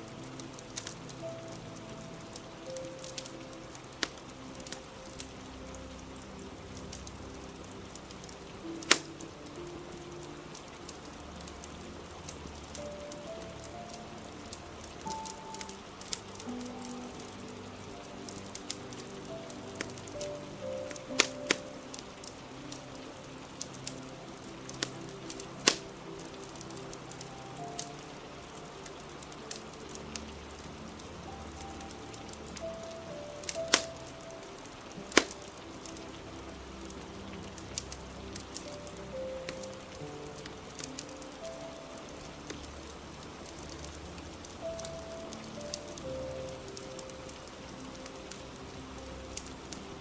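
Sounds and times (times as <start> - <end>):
soft held musical notes: 0.0 - 50.0
steady rain falling: 0.0 - 50.0
wood fire crackling: 0.0 - 50.0
sharp fire pops: 25.6 - 25.8, 35.1 - 35.4.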